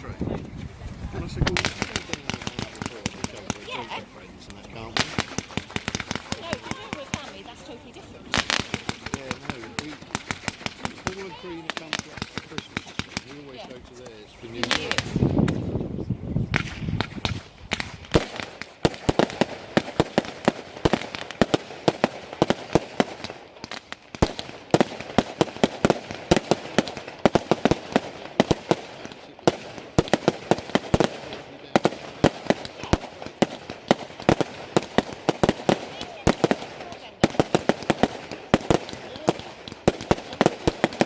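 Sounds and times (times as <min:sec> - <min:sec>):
fireworks cracking and banging: 0:00.0 - 0:15.8, 0:16.5 - 0:41.0.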